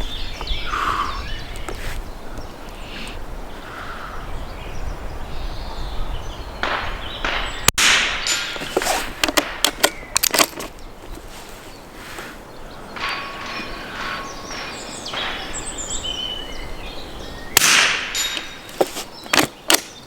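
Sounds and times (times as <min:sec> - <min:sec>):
rifle bolt metallic clacks: 0:07.8 - 0:10.8, 0:17.6 - 0:20.0.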